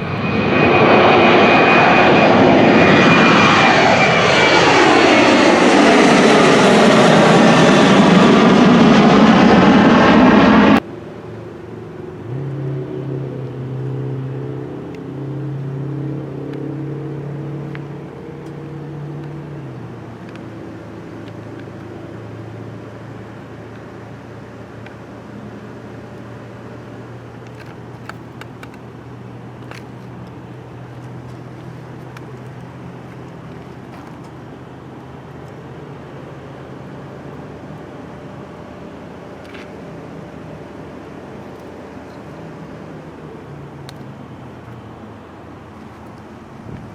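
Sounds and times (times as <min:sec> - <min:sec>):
rushing noise: 0:00.0 - 0:10.8
loud jet engine noise: 0:00.0 - 0:46.9
quiet steady engine hum: 0:00.0 - 0:46.9.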